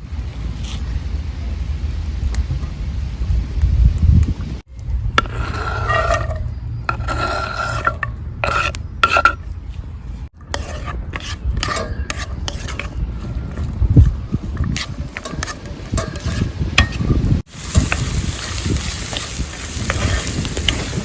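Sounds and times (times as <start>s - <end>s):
steady low rumble: 0.0s - 21.0s
utensil scraping a cooking pan: 5.1s - 21.0s.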